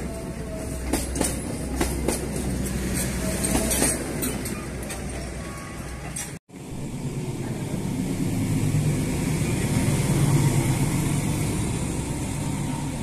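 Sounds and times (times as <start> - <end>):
passing train rumble: 0.0 - 13.0.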